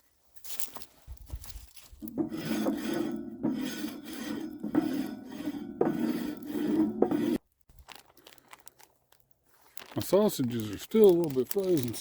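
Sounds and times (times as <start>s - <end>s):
rough rasping scrape: 1.8s - 7.4s.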